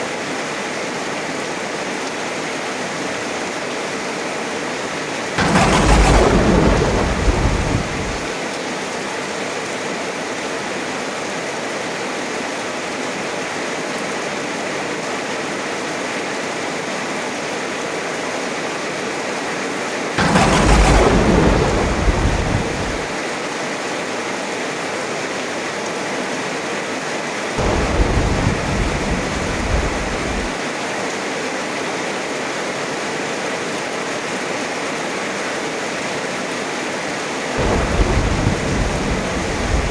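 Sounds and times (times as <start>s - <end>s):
heavy rain: 3.8s - 9.7s, 20.2s - 23.9s, 25.2s - 31.9s, 36.4s - 39.9s
thunder rumbling: 5.2s - 8.4s, 20.2s - 23.2s, 27.6s - 30.6s, 37.6s - 39.9s.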